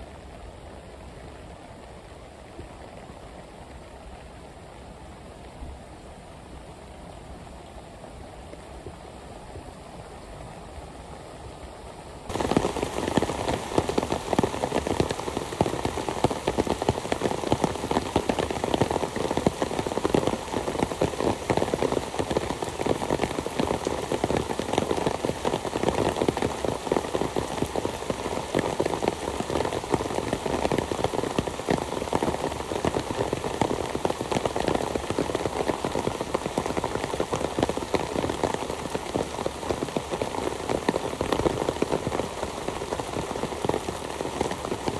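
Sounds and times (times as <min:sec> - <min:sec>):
heavy rain falling: 0:12.3 - 0:44.9.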